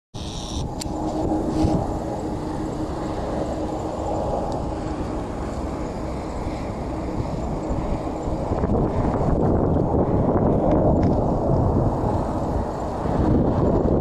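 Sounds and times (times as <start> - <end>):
jet airliner passing overhead: 0.2 - 14.0
wind on microphone: 0.2 - 14.0.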